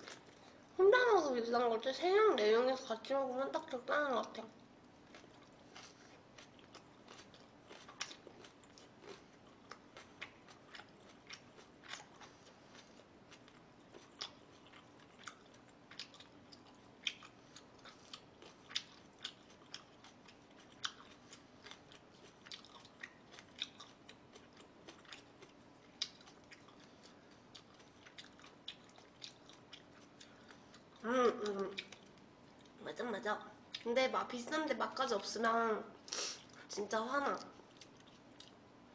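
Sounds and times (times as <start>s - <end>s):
person chewing and biting: 5.0s - 31.0s, 37.7s - 38.6s.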